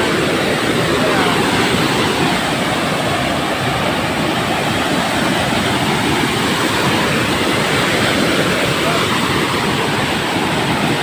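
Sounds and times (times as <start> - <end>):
rushing flowing water: 0.0 - 11.0.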